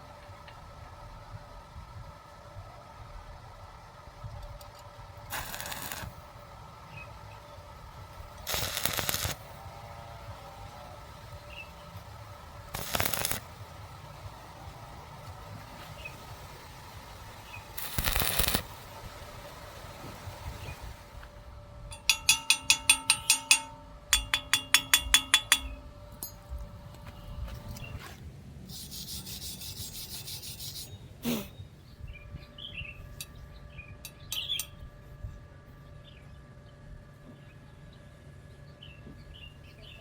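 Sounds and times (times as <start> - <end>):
birds chirping faintly: 9.4 - 40.0
metal ringing taps: 21.9 - 26.6
brief high hiss: 27.8 - 31.6.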